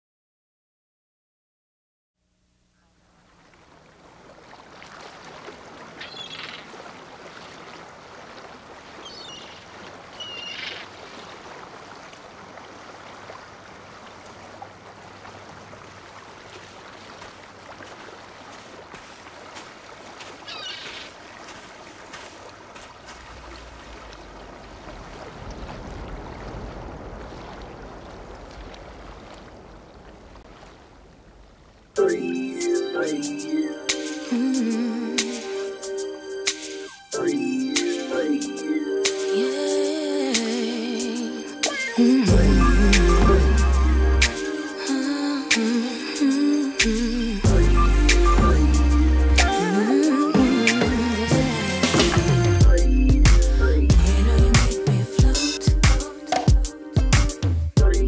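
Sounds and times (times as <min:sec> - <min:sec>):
water washing like surf: 0:03.3 - 0:52.7, 0:54.0 - 0:57.3
deep rumble: 0:47.3 - 0:49.4.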